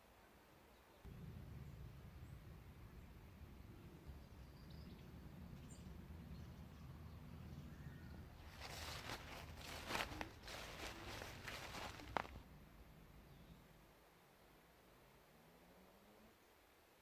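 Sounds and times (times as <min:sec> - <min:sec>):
faint bird chirps: 0:00.7 - 0:13.9
low rumble: 0:01.1 - 0:13.9
footsteps with rustling: 0:03.2 - 0:12.6.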